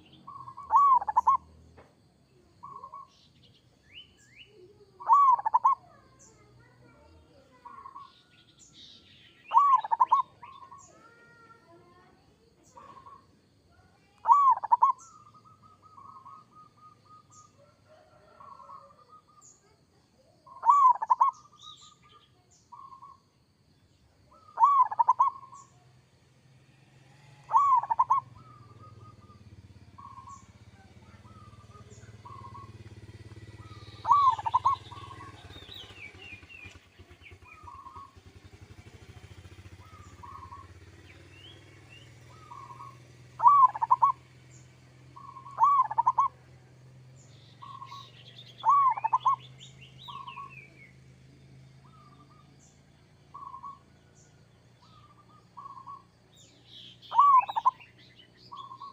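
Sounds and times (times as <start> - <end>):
dove cooing: 0.0 - 1.6, 2.6 - 3.2, 4.6 - 8.1, 9.5 - 22.0, 24.3 - 25.8, 27.2 - 46.6, 47.6 - 50.7, 53.3 - 54.0, 54.8 - 56.1, 57.1 - 58.9
small birds chirping: 0.0 - 58.9.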